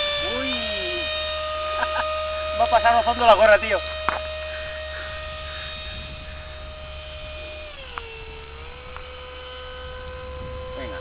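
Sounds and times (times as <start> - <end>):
electric ducted fan whining: 0.0 - 11.0.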